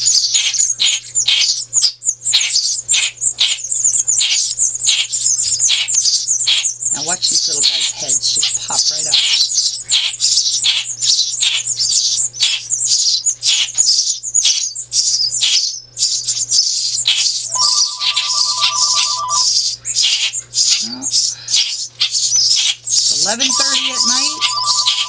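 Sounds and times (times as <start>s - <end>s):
baby birds chirping: 0.0s - 25.0s
phone ringtone: 17.5s - 19.5s, 23.3s - 25.0s.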